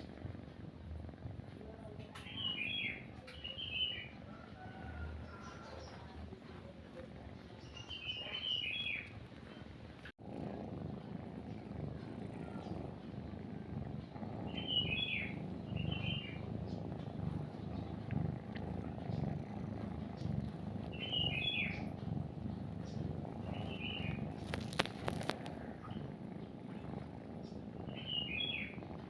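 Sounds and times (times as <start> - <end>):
cat purring: 0.0 - 29.0
bird chirping: 2.1 - 4.2, 7.4 - 9.6, 14.4 - 18.1, 20.0 - 21.9, 22.7 - 28.8
scratchy rustle: 10.4 - 27.8.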